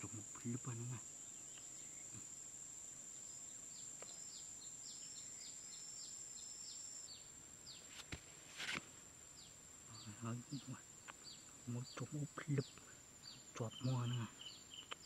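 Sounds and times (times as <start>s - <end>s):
bird chirping: 0.0s - 2.3s, 3.1s - 8.0s, 9.3s - 15.0s
high-pitched insect drone: 0.0s - 7.8s, 9.4s - 15.0s
brief rustle: 7.9s - 9.0s.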